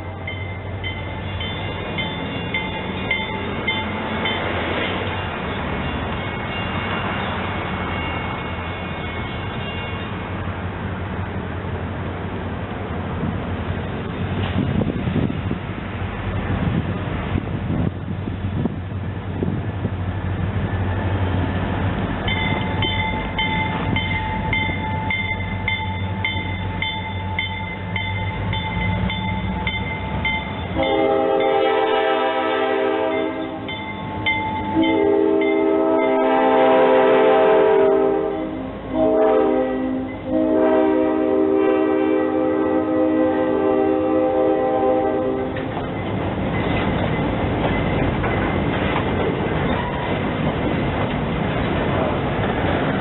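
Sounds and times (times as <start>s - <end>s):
crossing bell ringing: 0.0s - 10.4s, 22.2s - 39.2s, 44.6s - 48.8s
train rumbling past: 0.0s - 53.0s
train horn blasts: 30.6s - 33.8s, 34.6s - 45.7s.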